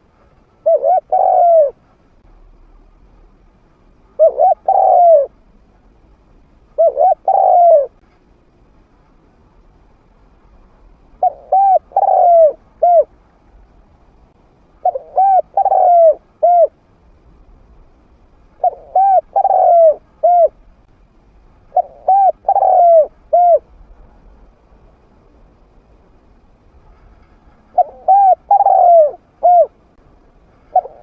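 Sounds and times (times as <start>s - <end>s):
dove cooing: 0.6s - 1.8s, 4.2s - 5.4s, 6.8s - 8.0s, 11.2s - 13.1s, 14.8s - 16.8s, 18.6s - 20.6s, 21.7s - 23.7s, 27.7s - 29.8s, 30.7s - 31.0s.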